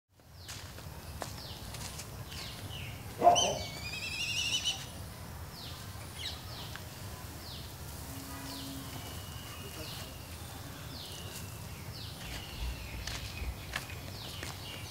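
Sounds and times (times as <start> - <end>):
high falling bird chirps: 2.3 - 4.9, 7.4 - 14.9
wavering whistle-like bird call: 3.2 - 4.9.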